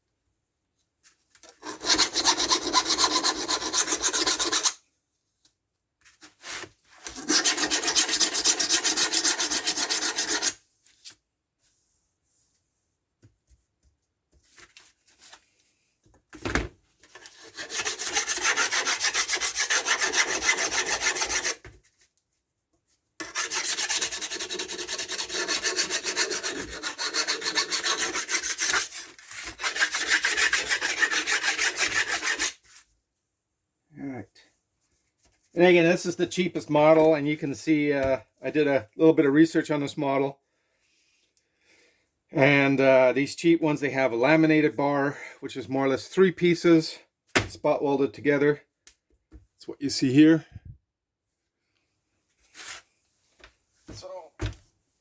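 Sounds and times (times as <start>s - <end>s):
hand file rasping on metal: 1.6s - 4.8s, 7.0s - 10.6s, 17.1s - 21.6s, 23.2s - 32.6s.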